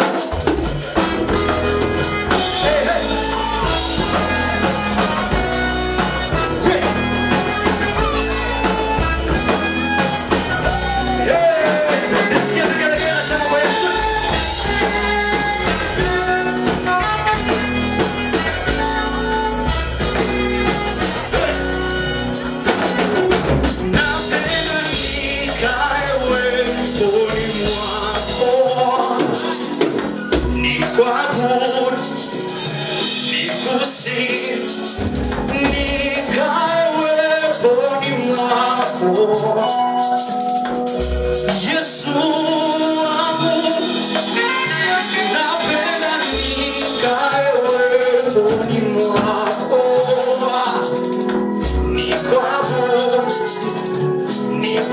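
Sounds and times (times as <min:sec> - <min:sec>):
instrumental accompaniment: 0:00.0 - 0:54.9
group singing: 0:01.0 - 0:09.3, 0:09.9 - 0:39.7, 0:41.5 - 0:54.9.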